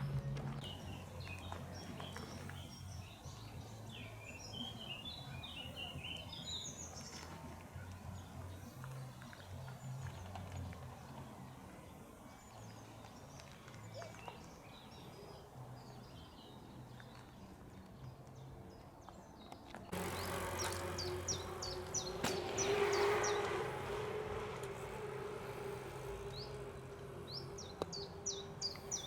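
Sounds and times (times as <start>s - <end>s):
bird chirps: 26.0s - 29.0s.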